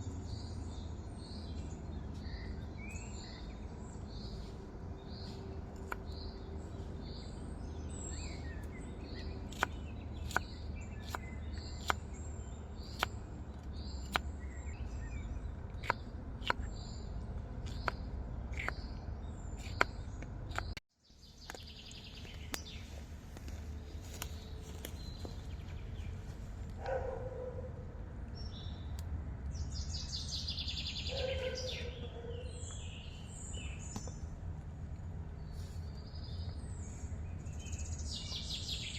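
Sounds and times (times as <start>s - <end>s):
birds chirping: 0.0s - 38.9s
sharp irregular clicks: 19.6s - 20.8s.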